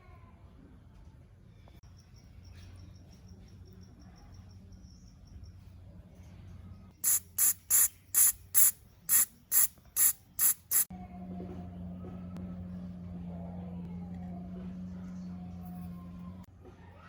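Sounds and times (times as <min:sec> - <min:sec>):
hissing spray bursts: 0:07.0 - 0:10.9.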